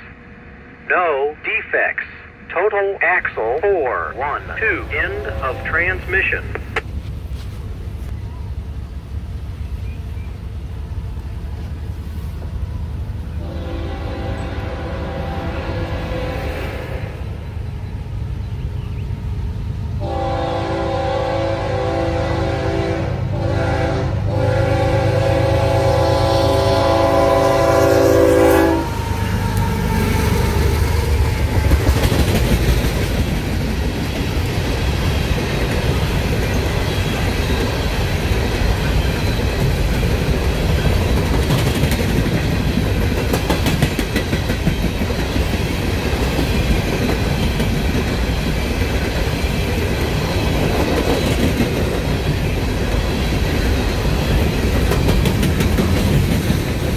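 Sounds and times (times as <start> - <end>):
freight train rumbling and rattling: 0.0 - 56.9
locomotive horn chord: 5.0 - 6.0, 13.4 - 17.2, 20.0 - 30.2
wheels clacking over rail joints: 30.9 - 56.9.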